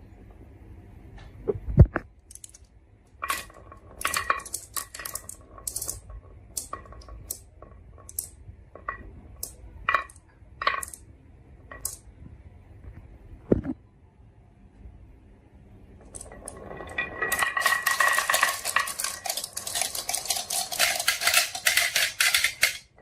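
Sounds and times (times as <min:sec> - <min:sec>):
marbles clicking on a track: 0:03.2 - 0:11.0, 0:11.7 - 0:12.1, 0:16.0 - 0:23.0.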